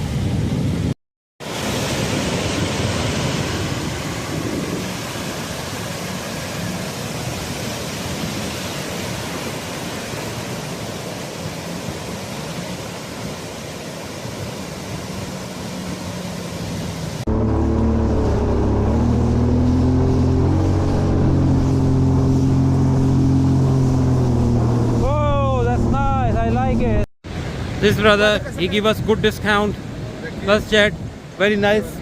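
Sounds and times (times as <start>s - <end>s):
wind and water spray rushing: 0.0s - 32.0s
jet ski engine: 1.5s - 27.0s.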